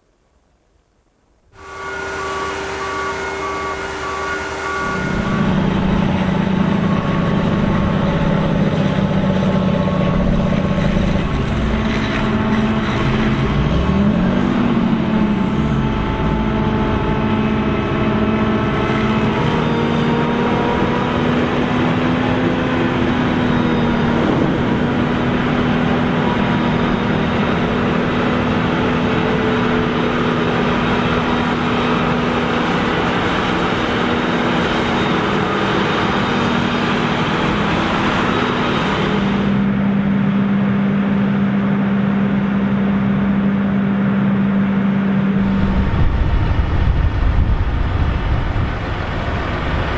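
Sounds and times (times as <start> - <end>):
tractor engines under load: 1.6 - 49.9.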